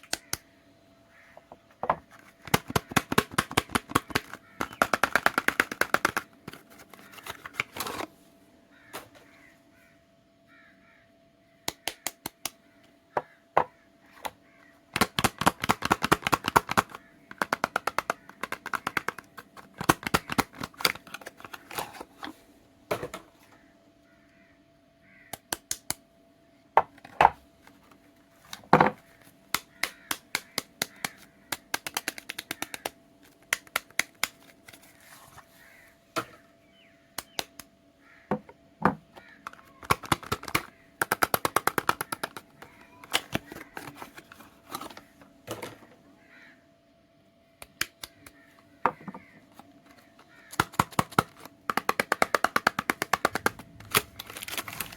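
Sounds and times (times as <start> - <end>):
faint steady hum: 0.0 - 54.9
packaging clicks and crackles: 2.2 - 8.1, 15.0 - 22.4, 28.5 - 35.4, 39.2 - 45.6, 49.5 - 54.9.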